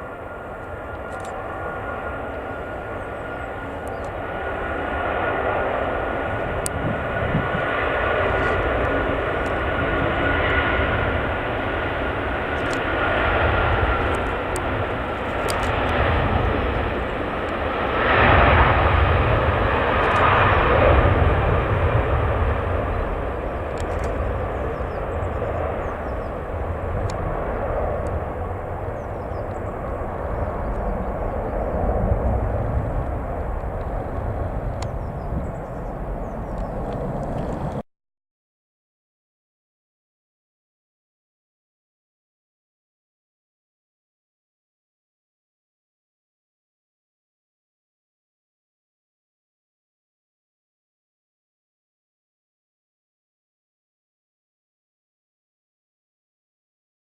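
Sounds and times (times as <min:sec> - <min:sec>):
high engine whine: 0:00.0 - 0:37.8
jet engines roaring at takeoff: 0:00.0 - 0:37.8.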